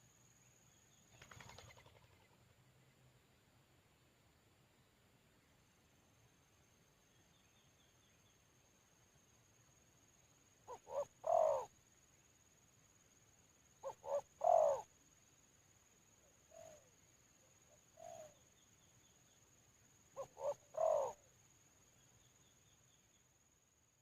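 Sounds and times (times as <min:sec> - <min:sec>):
dove cooing: 0:10.7 - 0:11.7, 0:13.8 - 0:14.9, 0:16.5 - 0:16.9, 0:17.9 - 0:18.4, 0:20.2 - 0:21.3.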